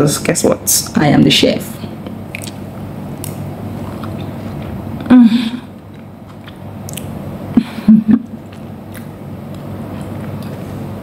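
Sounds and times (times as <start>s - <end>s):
woman chewing food: 5.7s - 7.3s, 8.2s - 11.0s.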